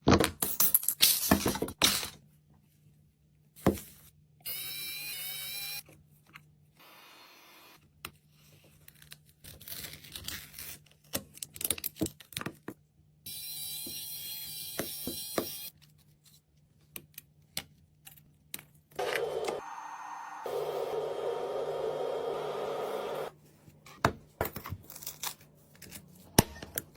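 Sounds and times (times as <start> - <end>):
steady machine whine: 19.0 - 23.3.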